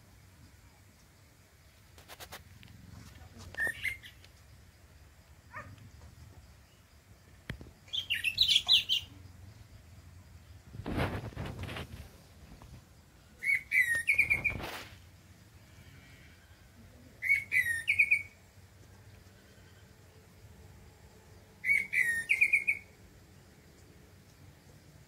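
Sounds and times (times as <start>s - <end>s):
songbird singing: 2.6s - 25.0s.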